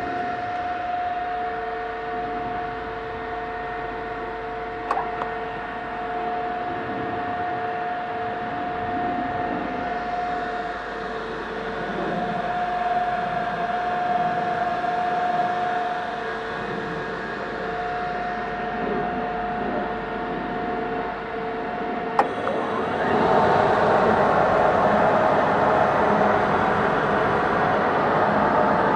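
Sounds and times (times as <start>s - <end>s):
machine tool motor whine: 22.2s - 28.9s.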